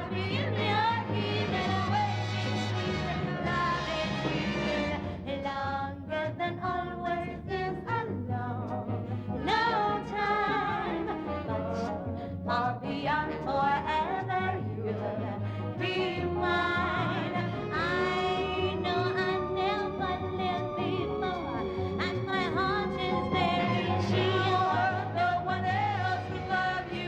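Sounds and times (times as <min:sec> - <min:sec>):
live band and orchestra: 0:00.0 - 0:27.0.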